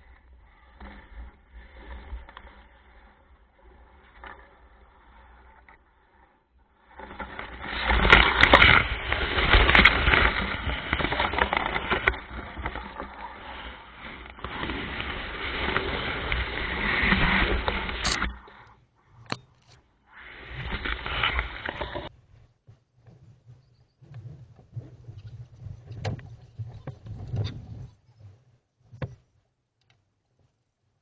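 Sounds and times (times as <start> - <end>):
wind buffeting microphone: 23.0 - 28.4.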